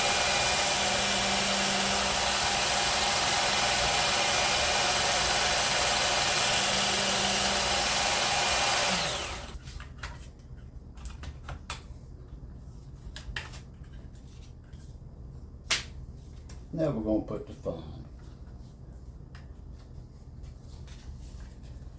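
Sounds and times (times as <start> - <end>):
electric belt sharpener running: 0.0 - 9.6.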